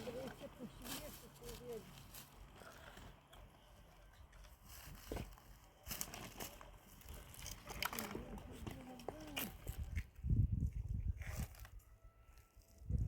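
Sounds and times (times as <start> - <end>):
faint rustling and crackling: 0.0 - 10.1.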